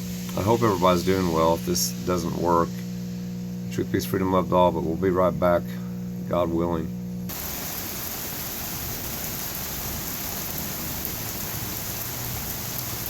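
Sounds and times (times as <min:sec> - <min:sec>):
heavy rain on ground and roof: 0:07.3 - 0:13.0.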